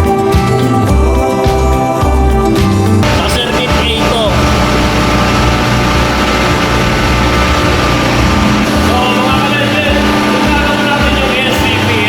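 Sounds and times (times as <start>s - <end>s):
machinery humming: 3.0s - 12.0s.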